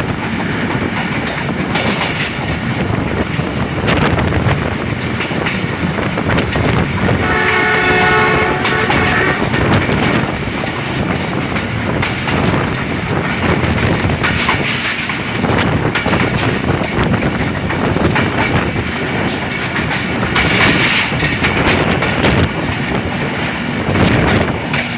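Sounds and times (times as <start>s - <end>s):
train rumble and wheel clatter: 0.0s - 24.9s
locomotive horn: 7.1s - 9.9s.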